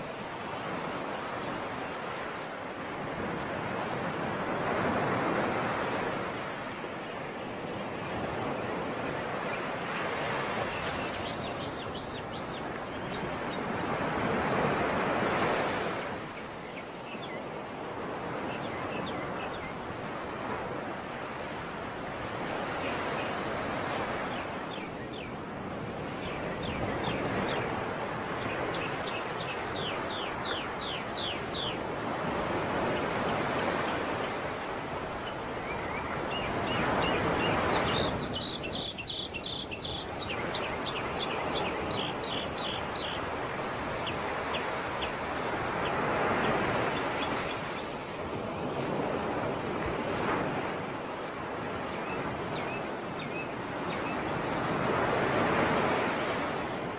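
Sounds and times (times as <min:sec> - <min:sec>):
sea waves washing ashore: 0:00.0 - 0:56.9
small bird singing high trills: 0:35.7 - 0:43.2.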